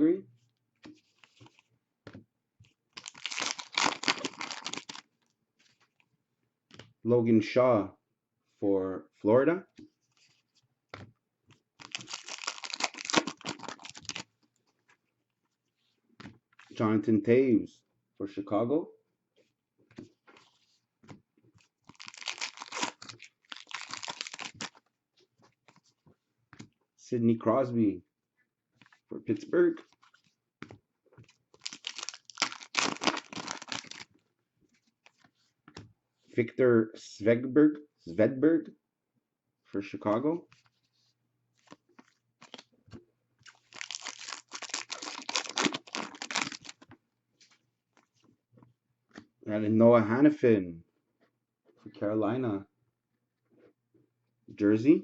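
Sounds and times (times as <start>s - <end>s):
packaging crinkling and tearing: 3.0s - 5.0s, 11.8s - 14.3s, 21.9s - 24.8s, 31.6s - 34.1s, 42.0s - 42.7s, 43.5s - 46.9s.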